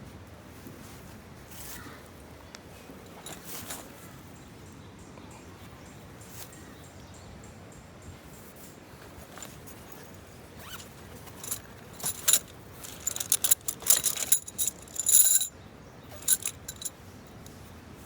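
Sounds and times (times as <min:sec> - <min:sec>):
metal objects clinking: 0:11.3 - 0:15.5, 0:16.2 - 0:16.9.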